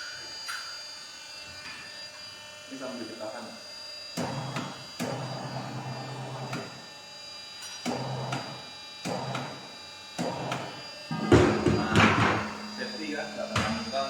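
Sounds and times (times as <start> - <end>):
tyre changer motor running: 4.1 - 6.9, 7.6 - 14.0
machine clunk: 11.1 - 14.0.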